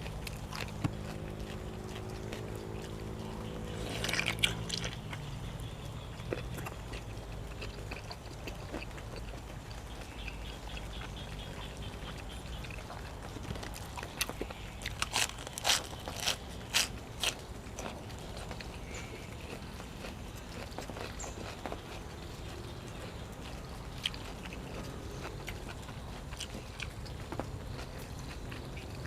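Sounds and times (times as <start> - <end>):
person chewing food: 0.0 - 29.0
sharp crunches: 0.2 - 5.3, 13.4 - 22.0.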